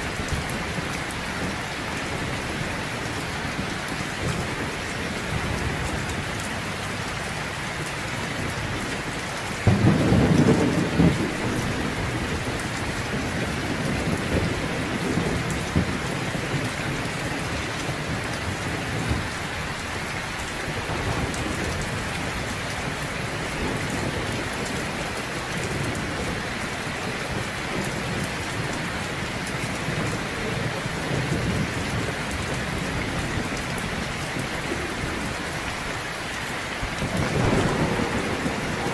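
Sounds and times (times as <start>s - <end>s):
heavy rain: 0.0s - 38.9s
low thunder rumbles: 0.0s - 38.9s
loud thunder clap: 9.6s - 16.7s, 37.0s - 38.9s.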